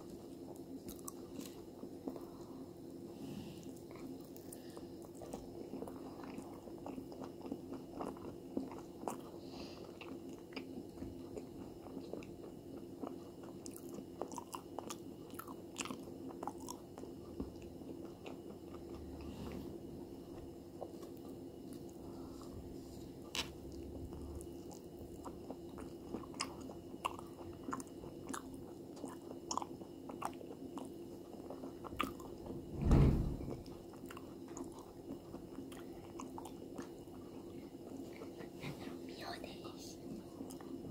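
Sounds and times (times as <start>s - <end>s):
chewing crisp food: 0.0s - 32.4s, 33.8s - 38.7s, 40.0s - 40.9s
loud thump: 32.6s - 33.7s.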